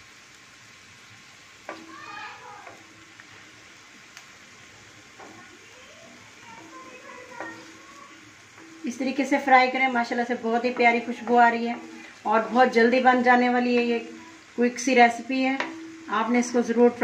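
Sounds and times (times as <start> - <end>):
liver sizzling in oil: 0.0 - 17.0
sharp tick: 4.1 - 4.3
wooden spatula scraping pan: 8.6 - 14.4.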